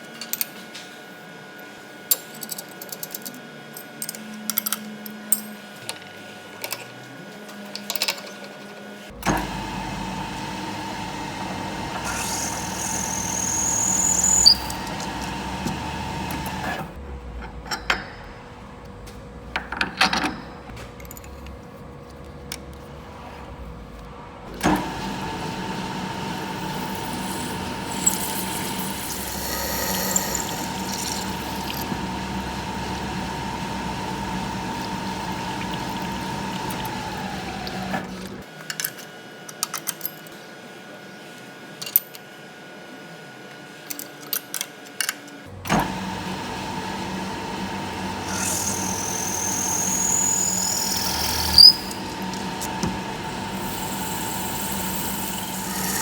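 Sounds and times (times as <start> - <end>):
machine tool humming: 9.1 - 17.1, 24.5 - 38.4, 45.5 - 56.0.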